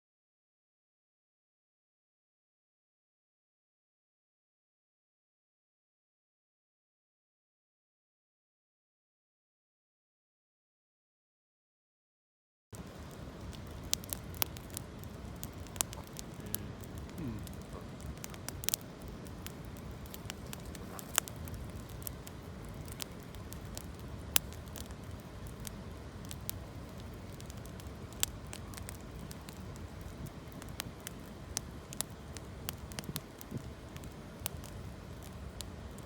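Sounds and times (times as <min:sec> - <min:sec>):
campfire crackling: 0:12.8 - 0:36.0
fire popping: 0:12.8 - 0:36.0
low fire rush: 0:12.8 - 0:36.0.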